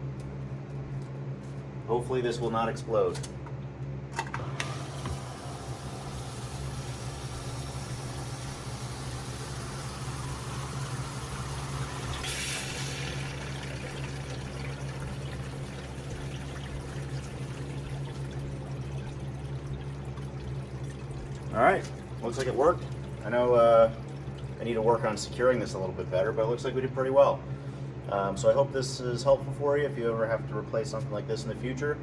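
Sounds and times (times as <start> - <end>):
electric motor hum: 4.2 - 26.6
water rushing up a pipe: 4.4 - 26.6.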